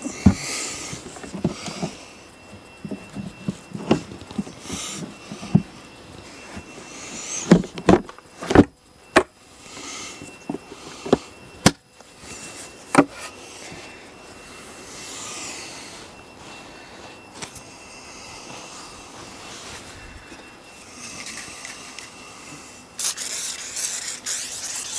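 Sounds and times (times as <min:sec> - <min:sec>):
handling knocks and bumps: 0:00.2 - 0:02.0, 0:02.8 - 0:05.8, 0:07.4 - 0:09.3
spray hissing swishes: 0:23.0 - 0:24.9.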